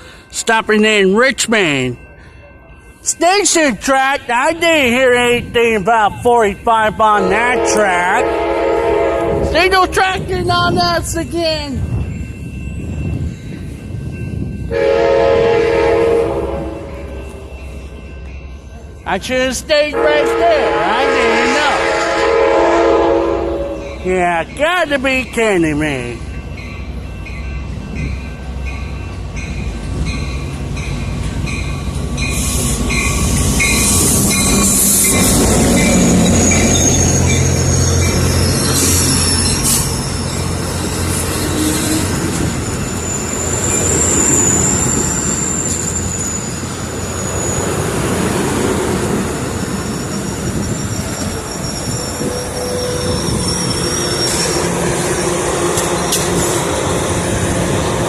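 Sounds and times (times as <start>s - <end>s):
train cars rumbling on rails: 0.0s - 58.0s
high wheel squeal: 32.2s - 57.4s.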